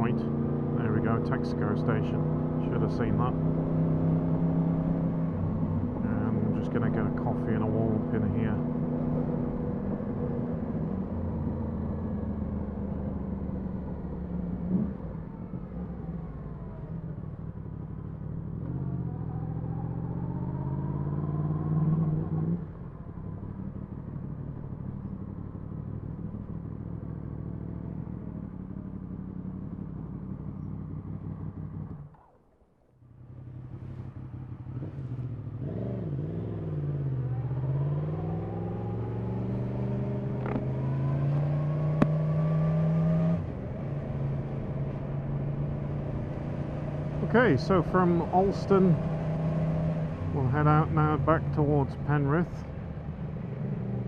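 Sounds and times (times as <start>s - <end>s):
motorcycle engine revving: 0.0s - 32.3s, 33.0s - 54.0s.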